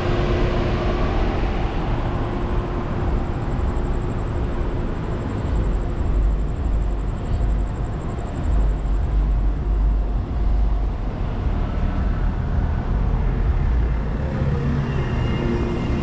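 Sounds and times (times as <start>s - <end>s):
wind buffeting microphone: 0.0s - 14.3s
faint road and traffic noise: 0.0s - 16.0s.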